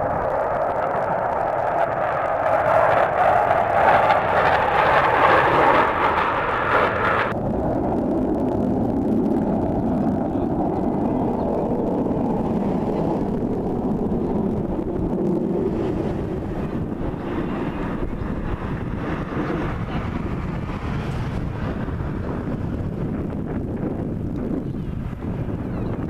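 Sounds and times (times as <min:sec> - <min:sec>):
aircraft engine roar: 0:00.0 - 0:26.0
low rumble: 0:00.0 - 0:26.0
wind on microphone: 0:00.0 - 0:26.0.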